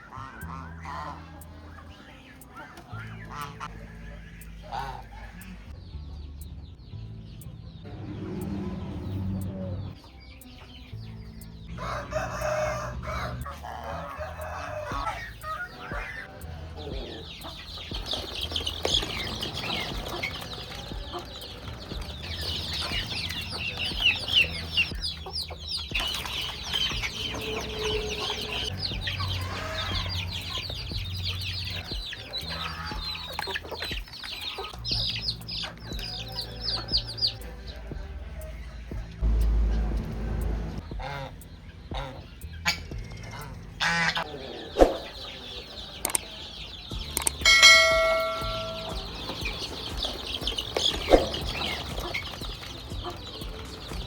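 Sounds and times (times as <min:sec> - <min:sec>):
chickens clucking: 0:00.0 - 0:54.0
rooster crowing: 0:11.7 - 0:16.4, 0:26.6 - 0:30.6
high-pitched chirping: 0:44.6 - 0:54.0.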